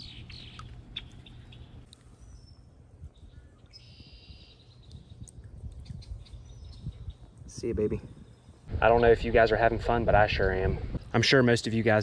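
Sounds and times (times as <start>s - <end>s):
bird trilling song: 0.0s - 7.4s
birds chirping: 0.0s - 11.9s.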